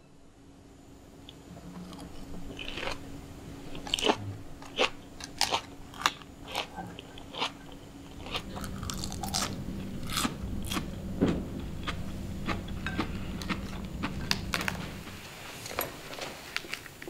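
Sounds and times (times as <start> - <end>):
person crunching lettuce: 1.8 - 3.0, 3.7 - 10.9.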